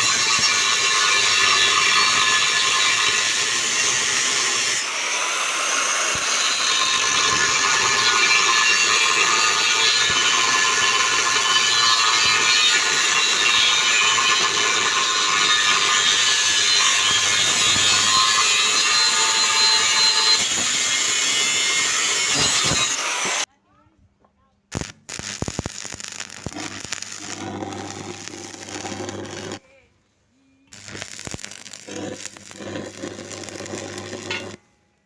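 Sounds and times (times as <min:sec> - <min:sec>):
power tool running: 0:25.4 - 0:29.6, 0:30.7 - 0:34.6.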